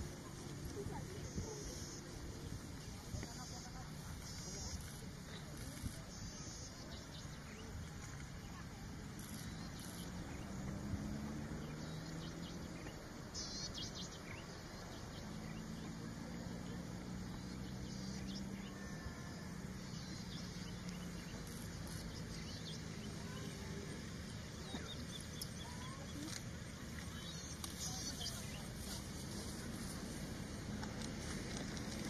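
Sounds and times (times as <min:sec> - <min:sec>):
bird chirps: 0:11.6 - 0:16.0, 0:27.0 - 0:29.0.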